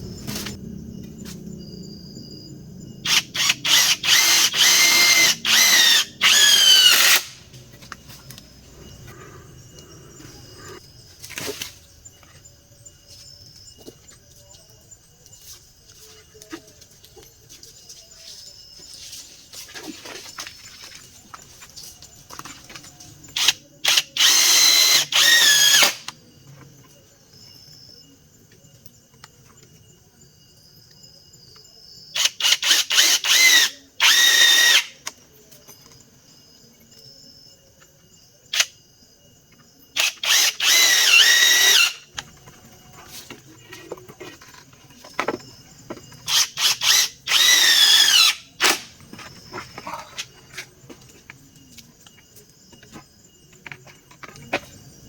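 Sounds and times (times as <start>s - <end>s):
power drill driving screws into wood: 3.0s - 7.4s, 23.4s - 26.1s, 32.2s - 35.0s, 40.0s - 42.0s, 46.3s - 48.9s.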